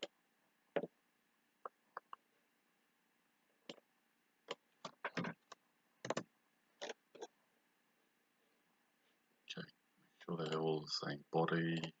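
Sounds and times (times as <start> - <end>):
computer mouse clicks: 10.4 - 10.7.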